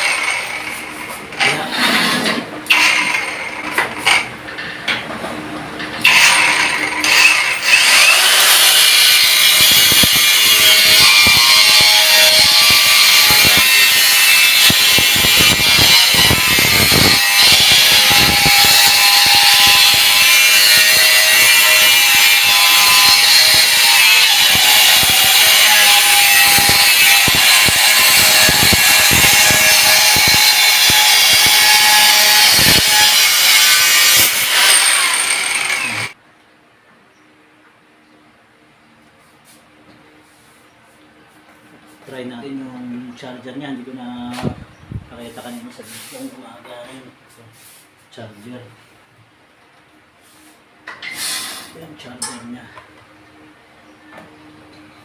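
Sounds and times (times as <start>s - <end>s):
angle grinder cutting: 0.0s - 4.3s, 6.0s - 36.2s.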